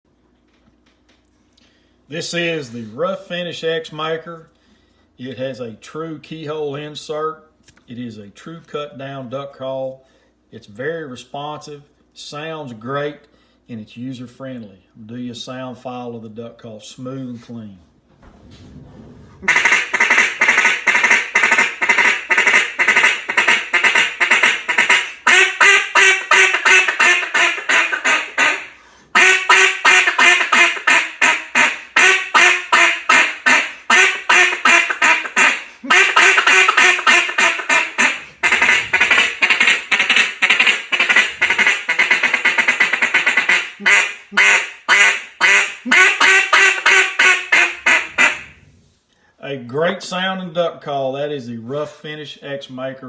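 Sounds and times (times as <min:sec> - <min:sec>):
duck call quacking: 0:19.4 - 0:48.6.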